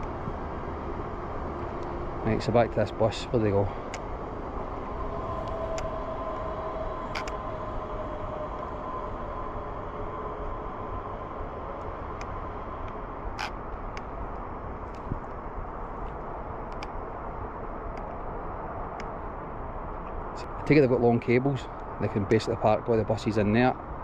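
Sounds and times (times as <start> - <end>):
outdoor traffic noise: 0.0 - 24.0
faint passing tone: 4.6 - 12.9.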